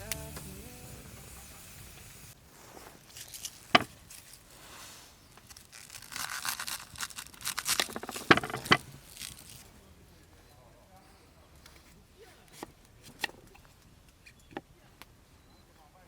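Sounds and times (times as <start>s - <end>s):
background music: 0.0s - 2.3s
packaging crinkling and scraping: 2.5s - 9.7s.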